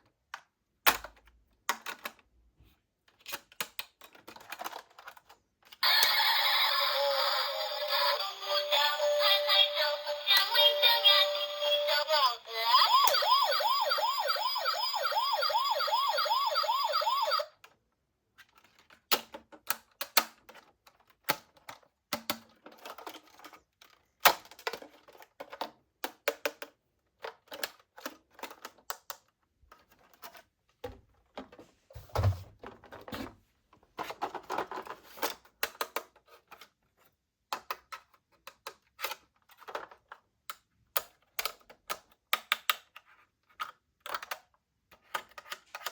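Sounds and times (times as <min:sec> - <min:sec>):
plastic toy cars clicking: 0:00.1 - 0:02.3, 0:03.1 - 0:13.3, 0:18.4 - 0:30.5, 0:34.0 - 0:45.9
toy siren wailing: 0:05.8 - 0:17.5.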